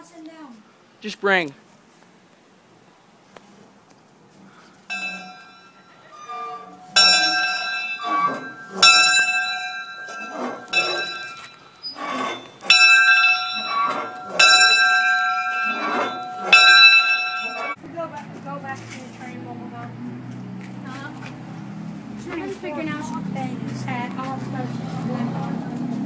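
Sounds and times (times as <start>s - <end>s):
large metal bell ringing: 4.9s - 17.8s.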